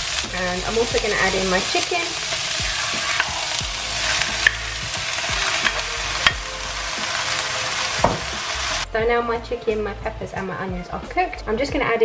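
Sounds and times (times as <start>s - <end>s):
vegetables sizzling in a pan: 0.0s - 8.9s.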